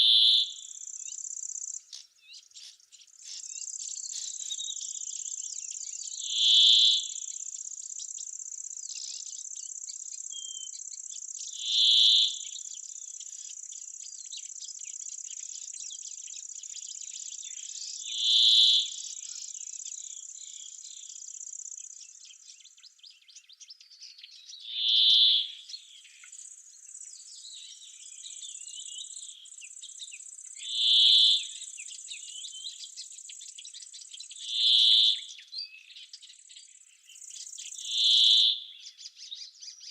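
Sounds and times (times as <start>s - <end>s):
insects high-pitched buzz: 3.3s - 22.3s, 24.8s - 35.4s, 37.3s - 38.7s
short loud insect call: 6.2s - 7.8s, 11.4s - 12.6s, 17.8s - 22.0s, 24.6s - 33.0s, 34.4s - 35.3s, 37.7s - 38.7s.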